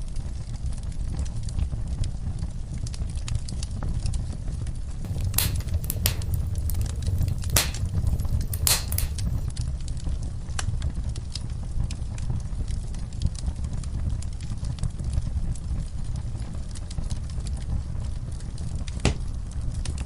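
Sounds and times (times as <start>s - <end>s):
sharp pops of fire: 5.1s - 9.5s
wood fire crackling: 5.1s - 9.5s.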